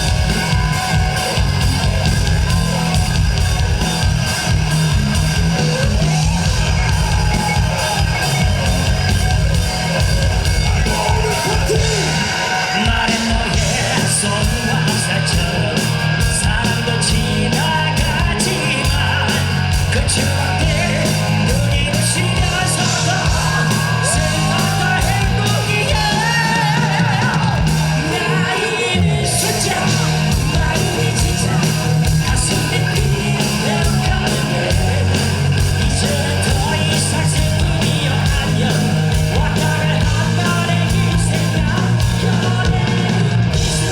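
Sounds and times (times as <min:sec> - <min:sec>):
live rock band playing: 0:00.0 - 0:43.9
man singing shouted lines: 0:10.5 - 0:43.4.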